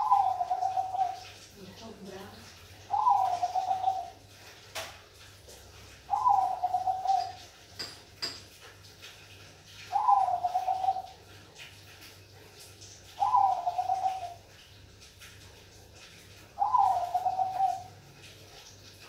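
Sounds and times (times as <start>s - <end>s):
dove cooing: 0.0s - 1.5s, 2.8s - 4.2s, 6.1s - 7.6s, 9.8s - 11.3s, 13.1s - 14.5s, 16.5s - 18.0s.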